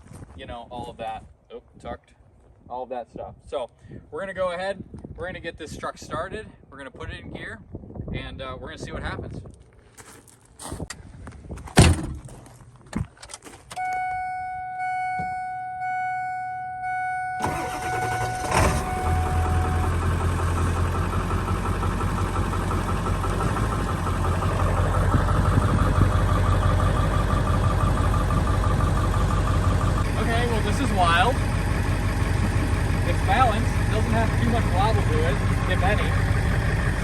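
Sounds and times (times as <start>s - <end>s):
truck engine idling: 16.8s - 37.0s
truck starter cranking: 17.4s - 22.4s.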